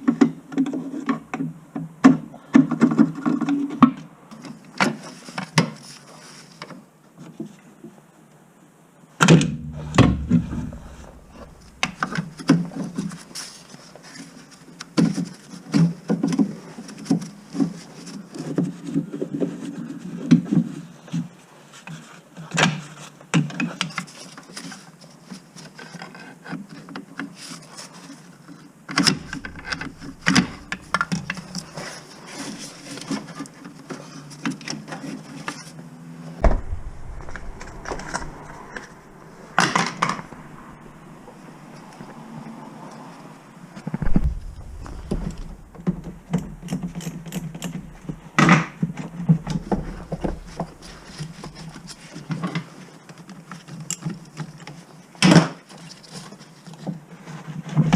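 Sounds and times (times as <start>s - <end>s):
sharp knocks: 9.4s - 12.5s, 36.4s - 41.1s, 44.0s - 47.0s
tools clicking and scraping: 45.3s - 48.3s.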